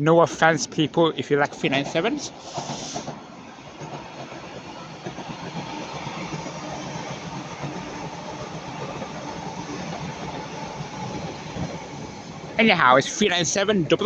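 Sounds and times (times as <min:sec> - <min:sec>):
train wheels running on track: 0:00.0 - 0:14.0.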